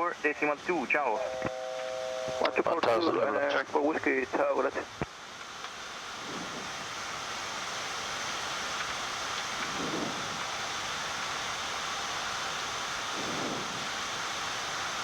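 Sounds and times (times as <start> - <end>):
air-conditioning blowing: 0.0 - 15.0
air flowing past aircraft nose: 6.0 - 7.7, 9.6 - 10.6, 13.0 - 14.2.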